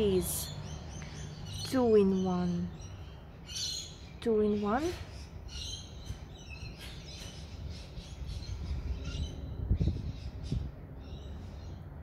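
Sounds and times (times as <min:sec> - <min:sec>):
birds chirping: 0:00.0 - 0:12.0
wind rumble on microphone: 0:04.8 - 0:12.0.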